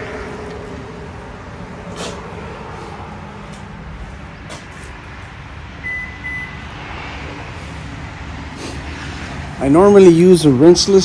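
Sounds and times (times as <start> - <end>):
machinery rumbling: 0.0 - 11.0
high electronic beeps: 5.8 - 6.6.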